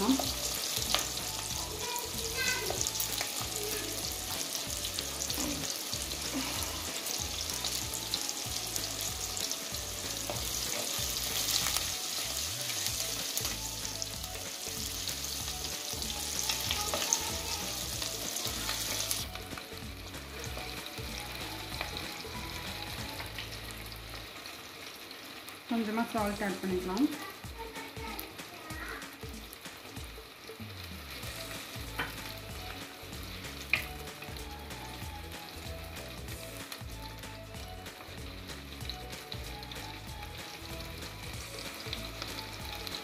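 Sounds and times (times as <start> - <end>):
onions frying in oil: 0.0 - 43.0.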